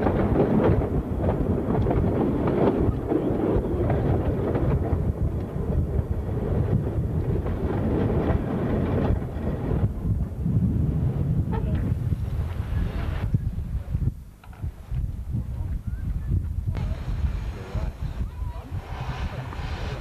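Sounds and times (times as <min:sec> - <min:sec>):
wheels clacking on rails: 0:00.0 - 0:10.0
railway carriage rumbling: 0:00.0 - 0:20.0.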